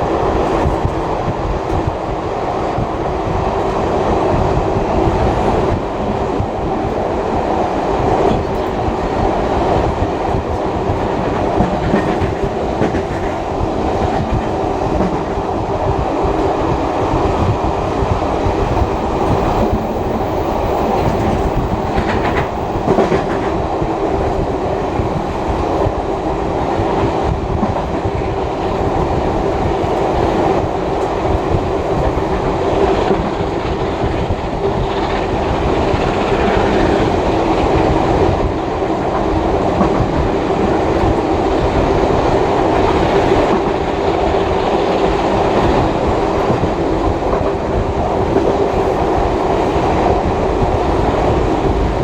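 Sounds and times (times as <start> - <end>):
train rumbling: 0.0 - 52.0
wheels clattering on rails: 7.8 - 26.2.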